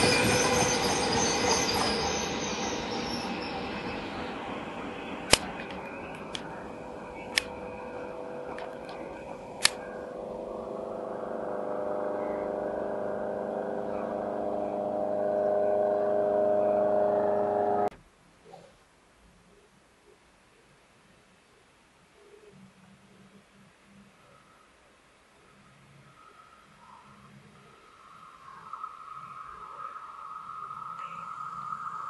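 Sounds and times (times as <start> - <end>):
electric train humming: 0.0 - 17.9.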